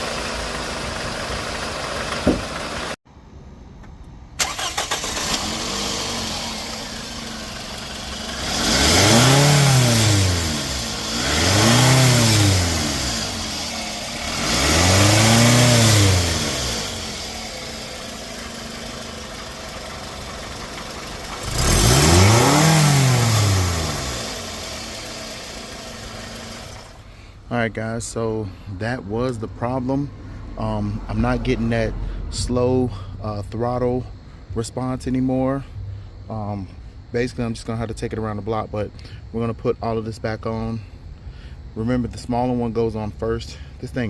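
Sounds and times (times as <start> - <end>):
car engine idling and revving: 0.0 - 3.0, 3.8 - 27.4, 28.4 - 33.2.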